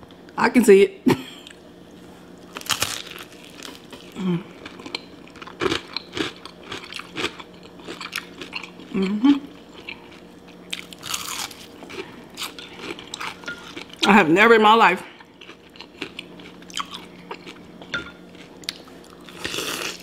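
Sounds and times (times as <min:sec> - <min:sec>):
crunchy chicken bite and chewing: 0:02.5 - 0:14.0, 0:15.2 - 0:17.8, 0:18.4 - 0:20.0.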